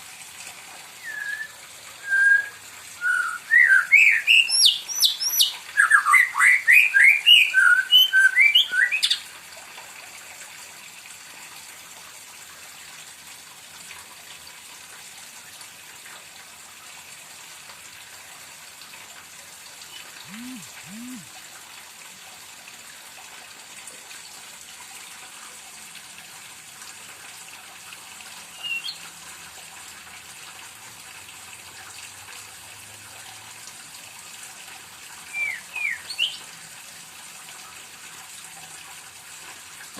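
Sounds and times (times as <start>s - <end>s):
bird singing whistled notes: 1.0s - 9.2s, 19.9s - 21.3s, 28.5s - 29.0s, 35.3s - 36.4s
faint steady hiss: 6.9s - 27.2s.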